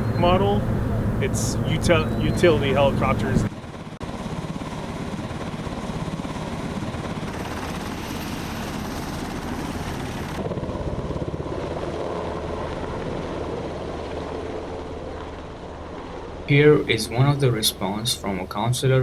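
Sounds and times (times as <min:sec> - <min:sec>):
helicopter rotor chopping: 0:00.0 - 0:15.2.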